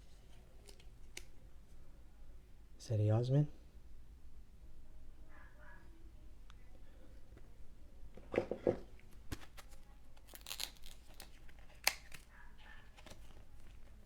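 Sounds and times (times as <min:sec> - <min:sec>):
pack wrapper crinkle: 0:09.3 - 0:12.3.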